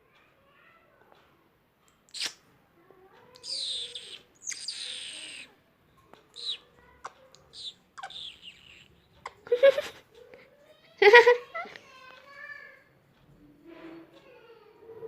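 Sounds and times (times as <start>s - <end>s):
parrot chirps and clicks: 1.9s - 2.4s, 3.2s - 5.5s, 6.1s - 9.5s
parrot raspy calls: 3.4s - 5.6s, 6.3s - 9.5s.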